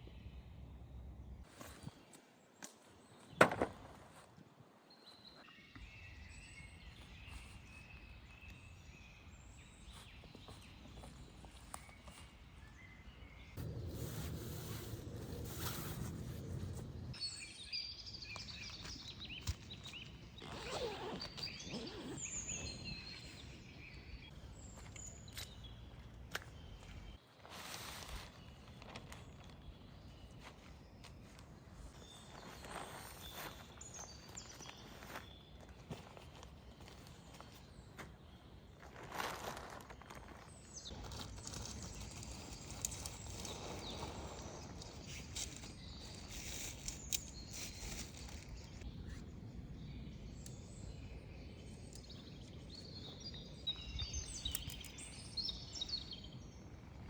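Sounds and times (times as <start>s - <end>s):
birds chirping: 5.3s - 27.2s
rustling handling noise: 39.0s - 48.8s.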